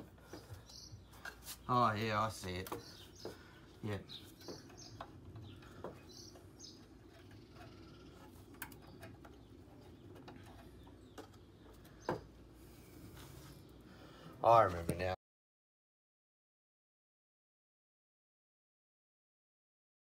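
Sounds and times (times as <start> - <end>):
bird chirps: 0.2 - 1.7, 2.6 - 12.3.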